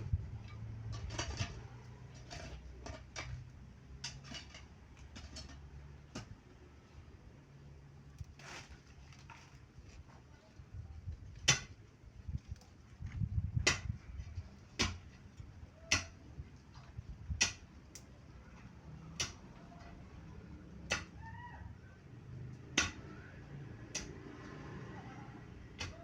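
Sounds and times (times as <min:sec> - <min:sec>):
low rumbling handling noise: 0:00.0 - 0:05.8, 0:10.8 - 0:20.4.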